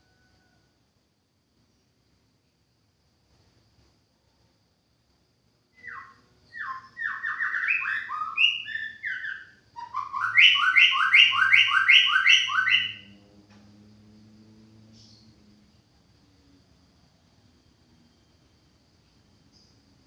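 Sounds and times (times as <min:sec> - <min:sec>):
bird whistling song: 0:05.8 - 0:13.1
bird repeated paired notes: 0:06.6 - 0:13.0.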